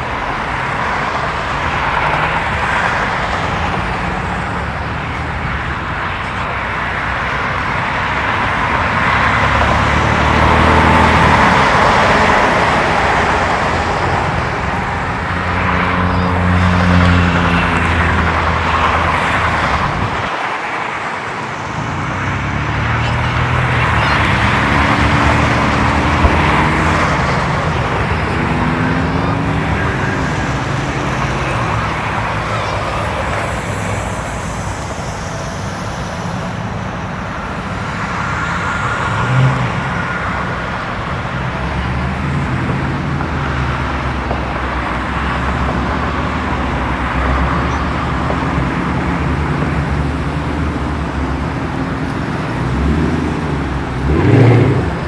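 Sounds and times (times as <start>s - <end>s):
cars passing: 0.0s - 55.0s.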